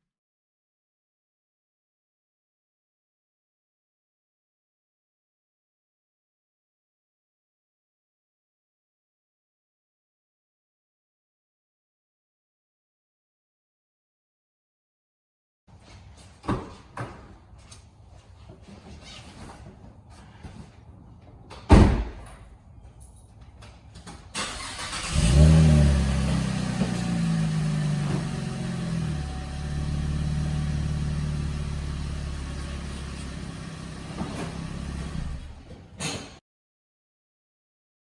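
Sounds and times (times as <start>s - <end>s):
car engine starting and idling: 24.3s - 35.6s.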